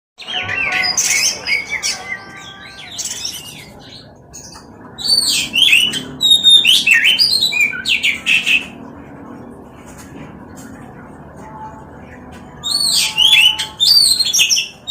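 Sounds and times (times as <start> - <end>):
bird singing whistles and chirps: 0.2 - 8.6, 12.6 - 14.9.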